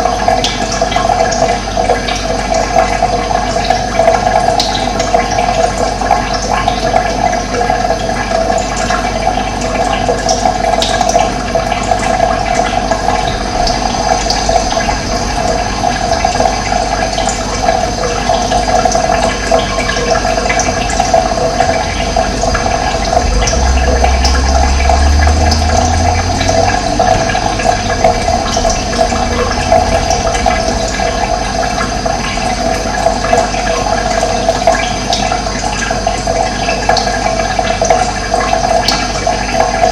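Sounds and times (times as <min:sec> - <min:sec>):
running water: 0:00.0 - 0:39.9
low rumble: 0:12.2 - 0:34.7.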